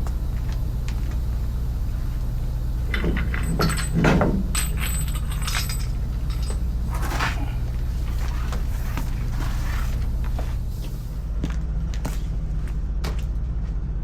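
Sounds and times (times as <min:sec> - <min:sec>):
low engine drone: 0:00.0 - 0:14.0
metallic clinks and clanks: 0:02.8 - 0:07.6.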